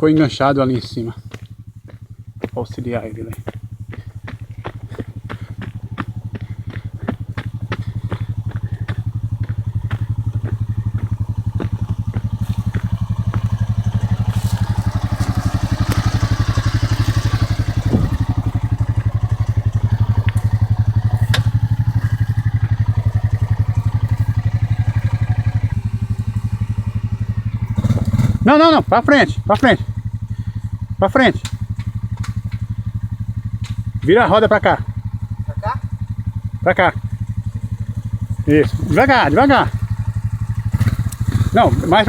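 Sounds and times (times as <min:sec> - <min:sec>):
quad bike engine running: 0:00.0 - 0:42.0
sharp clicks and knocks: 0:21.2 - 0:22.8, 0:31.4 - 0:32.7, 0:33.6 - 0:34.1.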